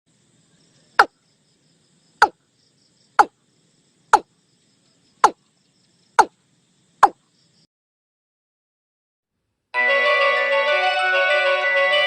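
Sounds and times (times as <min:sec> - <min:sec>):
crickets chirping: 0:00.1 - 0:07.7.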